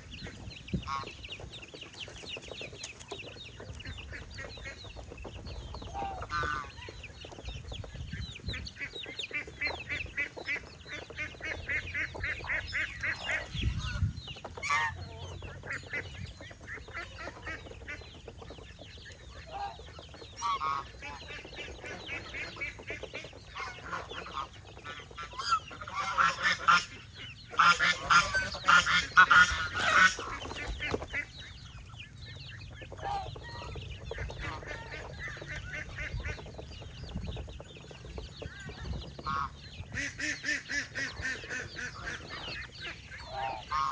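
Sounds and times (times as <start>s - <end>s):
chickens clucking: 0.0s - 43.9s
geese honking: 5.9s - 7.0s, 8.6s - 18.4s, 19.3s - 31.6s, 32.6s - 36.8s, 38.5s - 43.9s.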